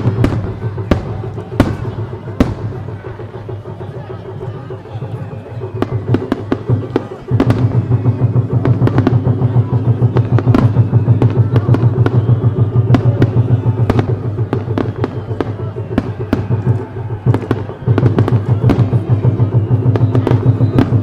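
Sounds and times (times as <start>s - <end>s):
fireworks shell bursts and bangs: 0.0s - 3.8s
music playing: 0.0s - 21.0s.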